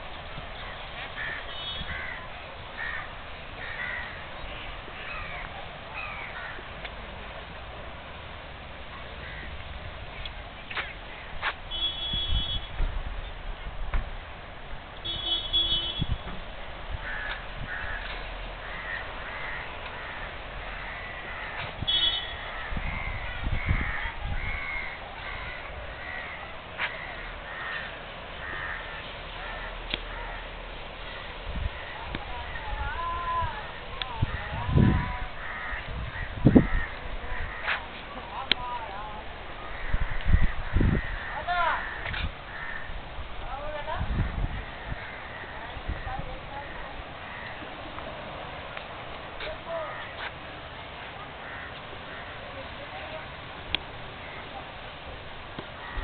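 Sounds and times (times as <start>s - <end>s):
steady background hiss: 0.0s - 56.0s
bird calling: 0.6s - 6.7s, 17.0s - 38.4s.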